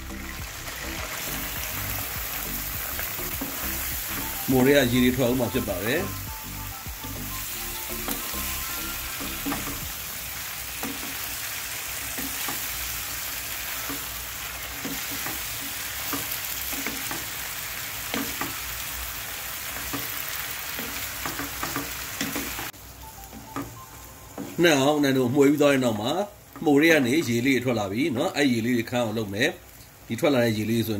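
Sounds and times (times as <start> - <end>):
food sizzling in a pan: 0.0 - 30.9.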